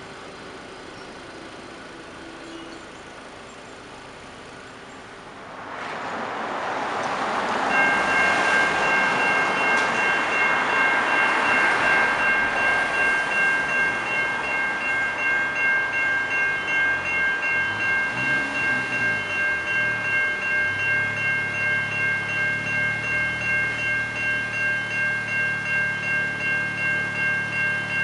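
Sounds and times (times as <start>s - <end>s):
train wheels on rails: 5.5s - 28.0s
level crossing electronic bell: 7.7s - 28.0s.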